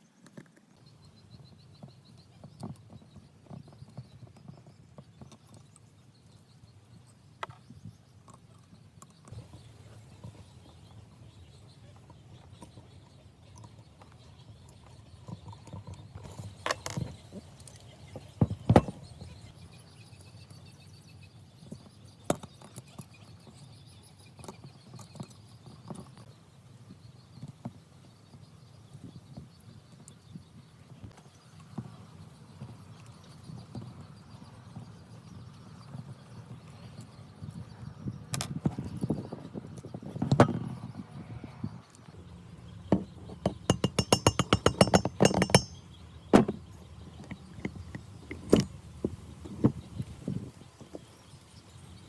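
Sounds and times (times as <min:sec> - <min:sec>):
hand tools clicking and knocking: 0:42.8 - 0:49.8.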